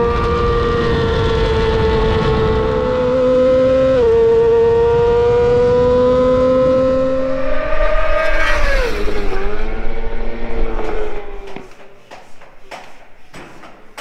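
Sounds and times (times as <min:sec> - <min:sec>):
motorcycle engine revving hard: 0:00.0 - 0:11.6.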